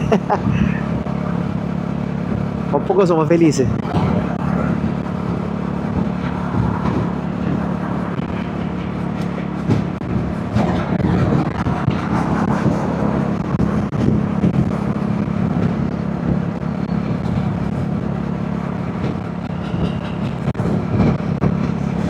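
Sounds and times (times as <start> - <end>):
motorcycle engine cruising: 0.0 - 22.0
wind and road noise: 0.0 - 22.0.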